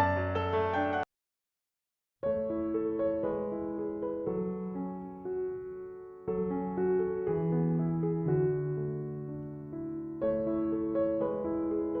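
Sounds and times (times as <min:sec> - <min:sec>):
gentle piano music: 0:00.0 - 0:01.1, 0:02.2 - 0:12.0.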